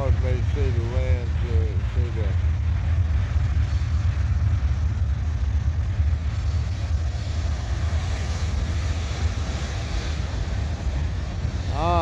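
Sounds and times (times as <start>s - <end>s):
wheels hissing on rail: 0.0s - 12.0s.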